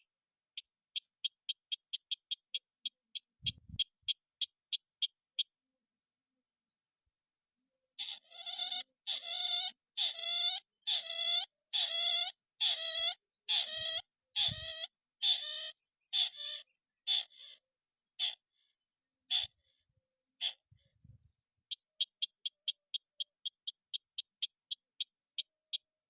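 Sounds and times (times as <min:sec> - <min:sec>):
soft low bumps: 0:03.4 - 0:03.8
crake calling: 0:08.0 - 0:17.6, 0:18.2 - 0:18.7, 0:19.3 - 0:19.8, 0:20.4 - 0:20.9.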